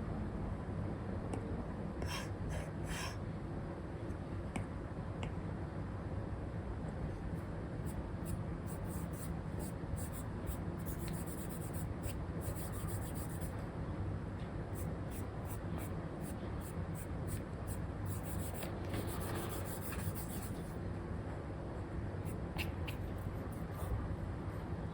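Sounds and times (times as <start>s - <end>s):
stylus scratching on screen film: 8.7s - 13.6s, 18.1s - 20.8s, 22.3s - 24.0s.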